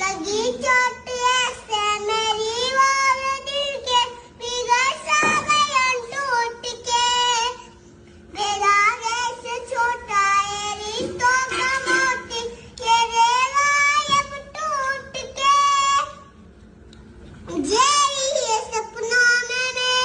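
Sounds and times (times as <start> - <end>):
child singing: 0.0 - 7.7, 8.3 - 16.3, 17.5 - 20.0.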